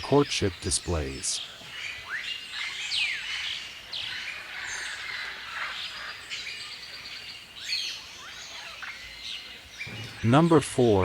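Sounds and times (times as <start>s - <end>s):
birds whistling: 0.1s - 11.0s
bird chattering: 9.8s - 11.0s
rapid high bird notes: 9.8s - 11.0s.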